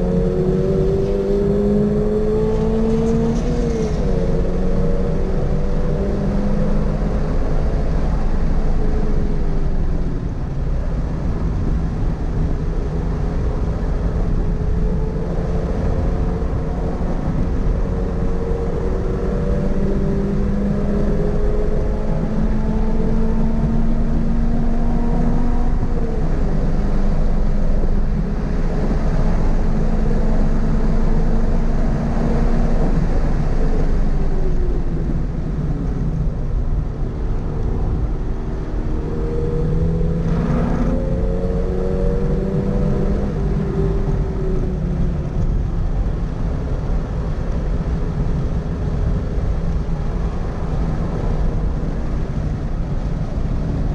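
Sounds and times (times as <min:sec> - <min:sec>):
car engine revving: 0:00.0 - 0:09.2, 0:15.6 - 0:46.1
road and wind noise: 0:00.0 - 0:53.9.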